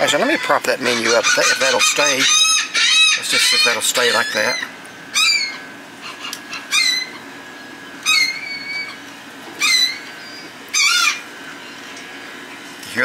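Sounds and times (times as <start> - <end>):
bird calls sweeping downward: 0.9 - 11.8.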